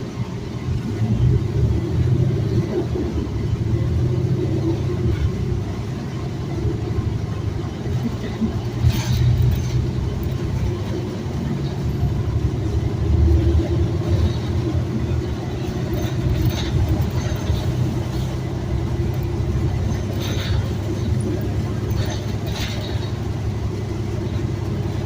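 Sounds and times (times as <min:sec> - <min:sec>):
bus engine and road rumble: 0:00.0 - 0:25.0
rattles and squeaks: 0:08.7 - 0:12.1, 0:13.6 - 0:25.0.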